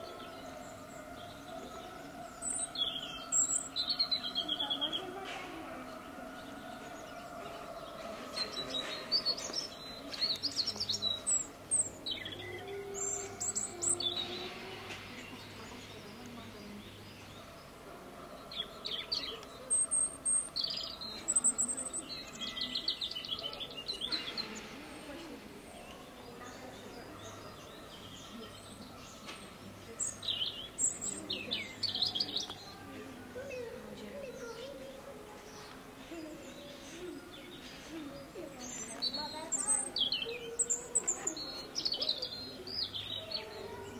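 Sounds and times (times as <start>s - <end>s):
small birds chirping: 0.0s - 43.9s.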